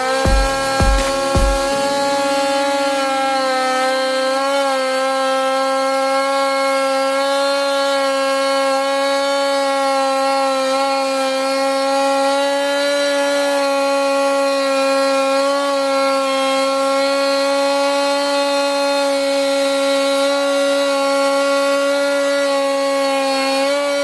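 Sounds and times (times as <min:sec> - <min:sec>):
chainsaw cutting a log: 0:00.0 - 0:24.0.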